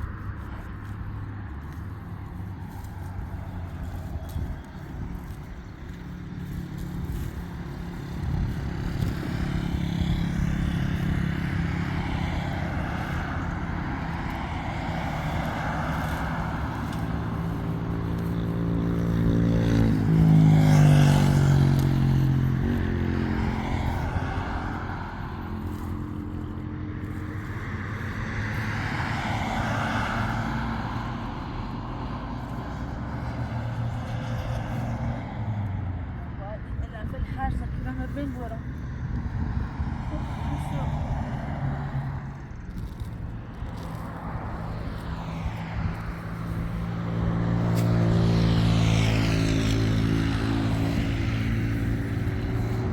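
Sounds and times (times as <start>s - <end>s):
vehicle engine running: 0.0s - 29.7s, 36.2s - 52.9s.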